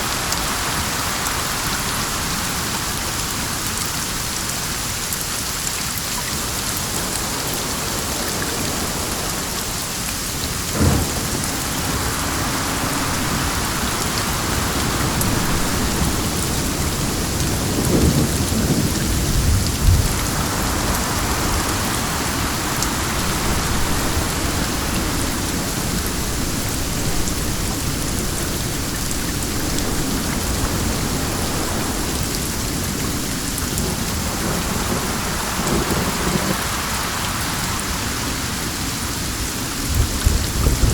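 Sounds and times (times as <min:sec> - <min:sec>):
heavy rain: 0:00.0 - 0:40.9
wind: 0:00.0 - 0:40.9
thunder rumbling: 0:10.4 - 0:36.8, 0:39.9 - 0:40.9.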